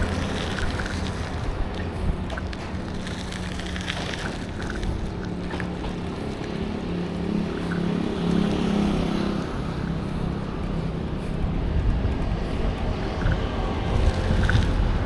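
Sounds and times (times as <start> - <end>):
traffic roar: 0.0 - 15.0
vehicle engine hum: 0.0 - 15.0.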